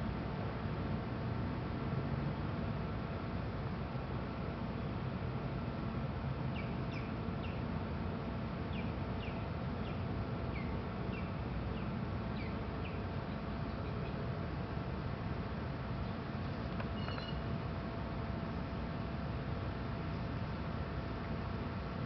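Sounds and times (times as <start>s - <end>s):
low background rumble: 0.0s - 22.0s
small bird chirping: 6.5s - 7.6s, 16.9s - 17.5s.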